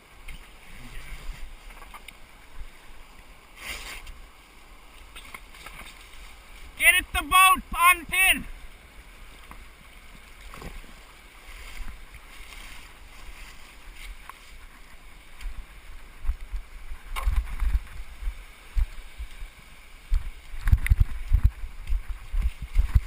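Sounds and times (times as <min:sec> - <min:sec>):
creek water flowing: 0:00.0 - 0:23.0
wind rumbling on microphone: 0:09.2 - 0:23.0.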